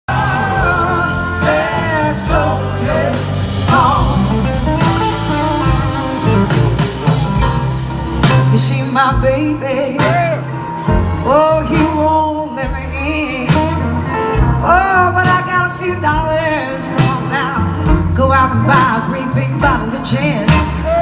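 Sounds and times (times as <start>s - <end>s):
electric guitar lead sliding: 0.1s - 11.8s
blues-rock band playing: 0.1s - 21.0s.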